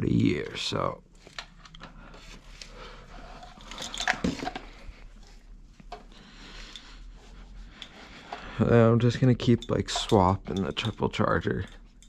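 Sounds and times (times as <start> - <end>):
handling clicks and rustling: 3.4 - 5.0, 7.7 - 12.0.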